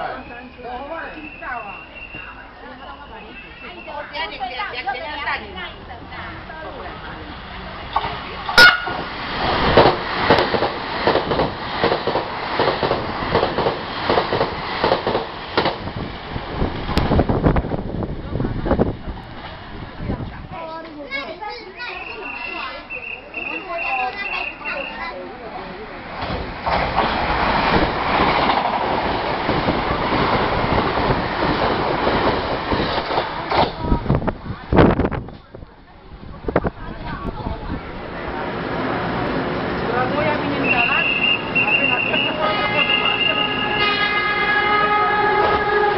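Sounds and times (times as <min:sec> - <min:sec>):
train rumble: 0:00.0 - 0:45.9
train wheels clacking on rail joints: 0:07.9 - 0:15.9, 0:26.2 - 0:33.9.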